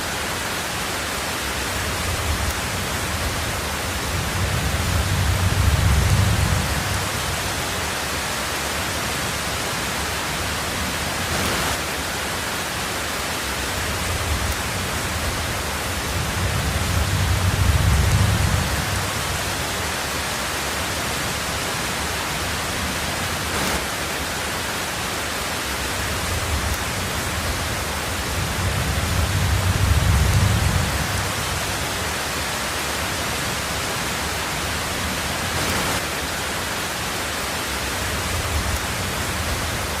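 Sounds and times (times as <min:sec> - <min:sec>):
heavy rain on a tin roof: 0:00.0 - 0:40.0
low rumbles of thunder: 0:01.8 - 0:07.8, 0:14.0 - 0:19.7, 0:26.1 - 0:32.0.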